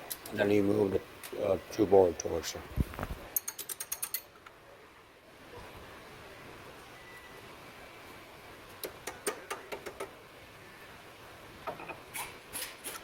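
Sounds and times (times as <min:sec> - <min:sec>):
tools and bolts clicking: 0:03.3 - 0:04.5.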